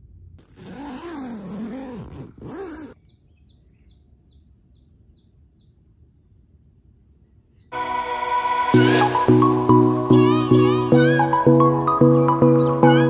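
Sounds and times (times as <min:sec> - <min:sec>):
songbird chirping: 0:02.4 - 0:07.9.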